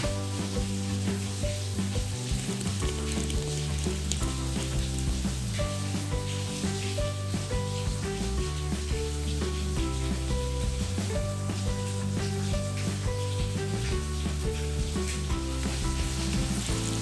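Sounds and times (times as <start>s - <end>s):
background music: 0.0s - 17.0s
hiss with faint ticks: 0.4s - 6.8s.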